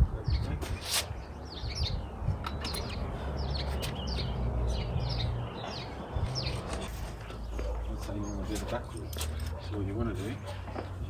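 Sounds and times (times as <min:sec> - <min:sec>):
wind rumble on microphone: 0:00.0 - 0:07.0
small birds chirping: 0:00.0 - 0:11.0.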